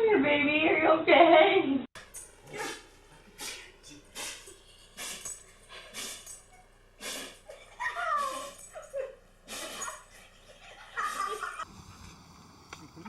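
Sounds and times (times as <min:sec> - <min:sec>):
dog sneezing: 0:02.5 - 0:06.4, 0:07.0 - 0:07.5, 0:08.1 - 0:08.7, 0:09.5 - 0:10.0.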